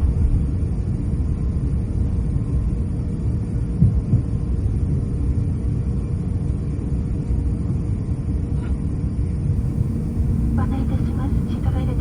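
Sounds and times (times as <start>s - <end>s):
airplane cabin rumble: 9.6s - 12.0s.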